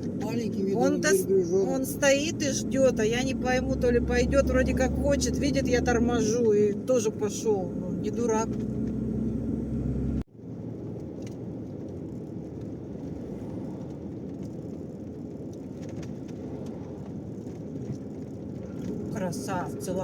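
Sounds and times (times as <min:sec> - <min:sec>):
loud engine hum: 0:00.0 - 0:10.3
truck rumble from inside cab: 0:00.0 - 0:11.0.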